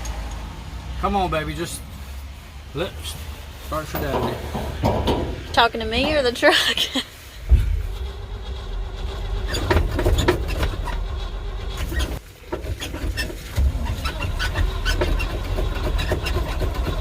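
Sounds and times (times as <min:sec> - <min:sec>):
truck engine cranking: 0:03.8 - 0:17.0.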